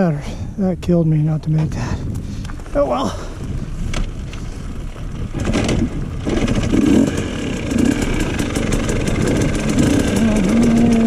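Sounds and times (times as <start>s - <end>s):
dirt bike engine running: 2.5s - 11.0s.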